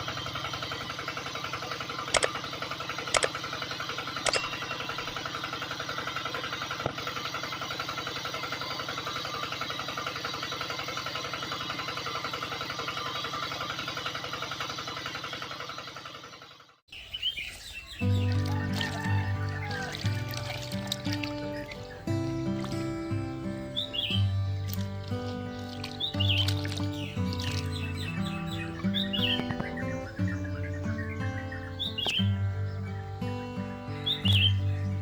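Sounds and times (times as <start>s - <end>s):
sharp clicks: 2.1s - 3.5s, 4.2s - 4.6s.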